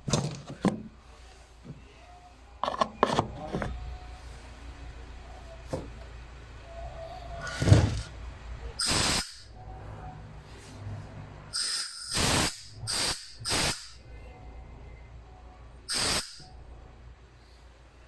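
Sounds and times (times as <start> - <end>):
compressed air blasts: 8.8 - 9.5, 11.5 - 14.0, 15.9 - 16.5.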